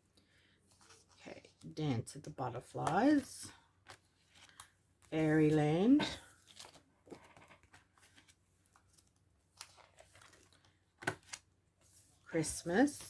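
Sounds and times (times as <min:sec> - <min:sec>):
paper envelopes rustling: 0:02.6 - 0:13.0.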